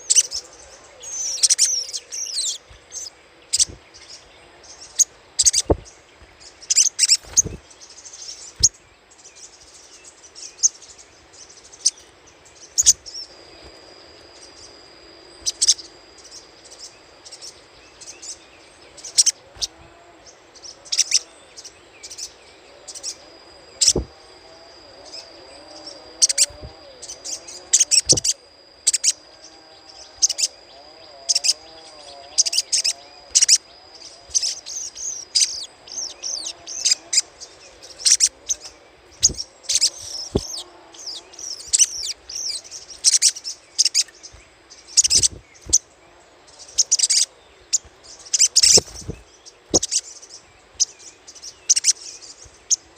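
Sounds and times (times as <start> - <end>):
bird chirping: 0.0 - 52.9.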